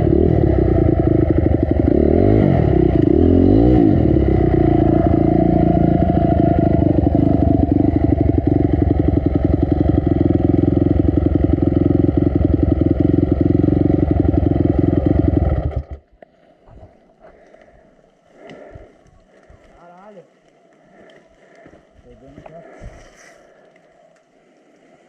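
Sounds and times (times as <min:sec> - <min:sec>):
dirt bike engine running: 0:00.0 - 0:16.1
faint ticks and clatter: 0:16.0 - 0:25.0.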